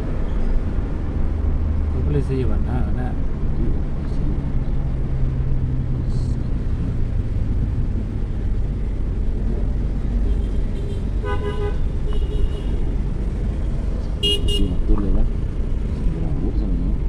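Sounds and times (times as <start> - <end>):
vehicle driving rumble: 0.0 - 17.0
vehicle horn: 10.2 - 12.9, 14.2 - 14.9.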